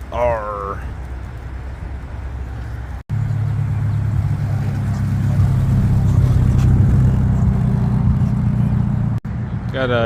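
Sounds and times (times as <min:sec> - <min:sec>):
car engine running: 0:01.3 - 0:09.4.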